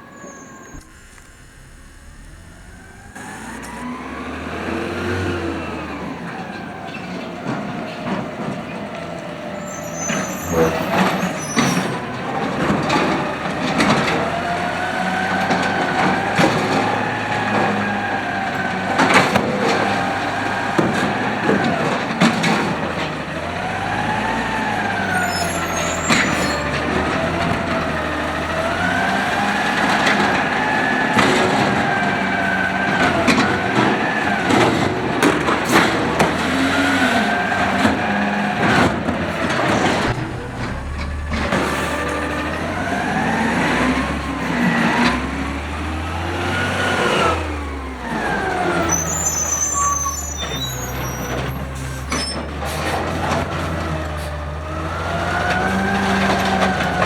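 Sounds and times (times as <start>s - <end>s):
hydraulic whine: 0.0s - 52.5s
garbage truck engine revving: 0.0s - 57.0s
metallic bangs and clanks: 37.8s - 43.3s.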